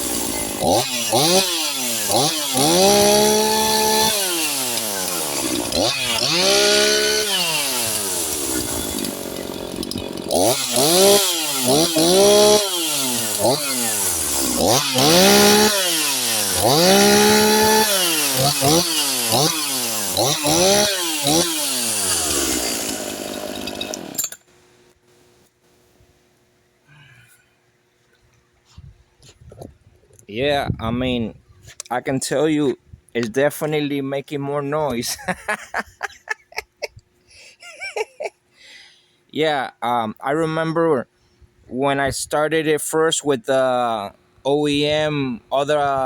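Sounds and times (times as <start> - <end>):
chainsaw engine revving: 0.0 - 24.4.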